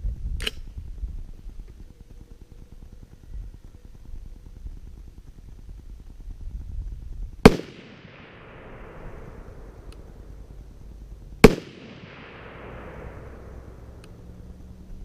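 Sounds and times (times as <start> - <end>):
rifle shots with echo: 7.4 - 10.5, 11.4 - 14.0.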